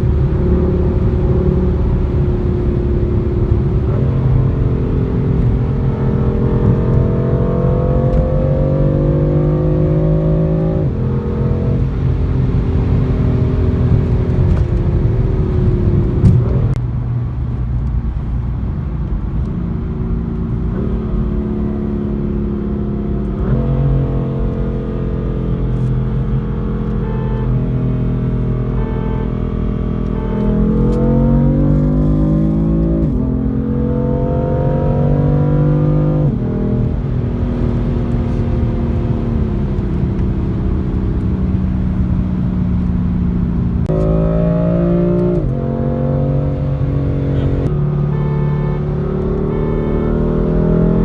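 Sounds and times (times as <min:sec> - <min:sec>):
car engine accelerating through gears: 0:00.0 - 0:51.0.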